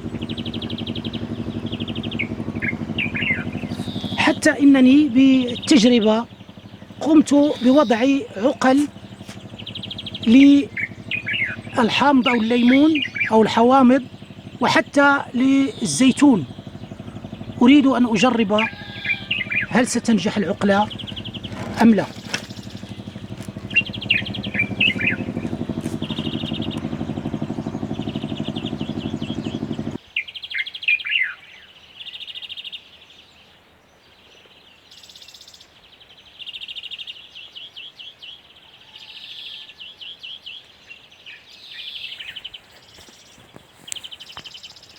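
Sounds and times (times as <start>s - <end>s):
low motor-like hum: 0.0s - 30.0s
small birds chirping: 0.0s - 44.9s.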